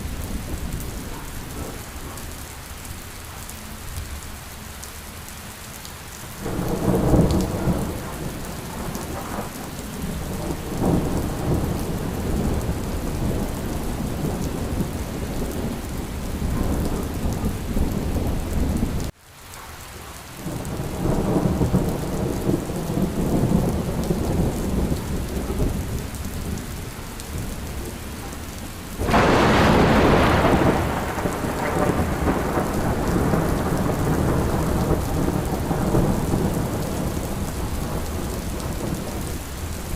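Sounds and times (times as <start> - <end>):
rolling thunder rumbles: 0.0 - 2.5, 6.3 - 19.1, 20.4 - 39.9
steady rain: 0.0 - 39.9
sharp thunderclap: 29.0 - 39.2.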